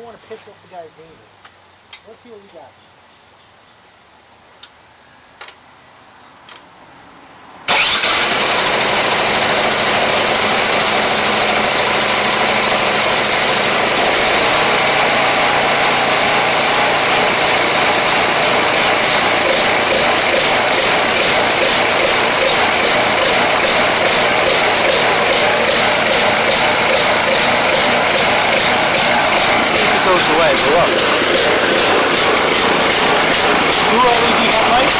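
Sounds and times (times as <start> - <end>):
snowblower engine running: 7.7 - 34.9.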